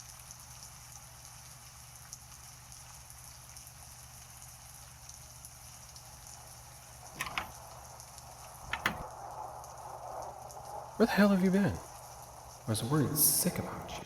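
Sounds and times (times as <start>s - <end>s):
heavy rain: 0.0s - 14.0s
sharp clicks: 8.7s - 9.1s.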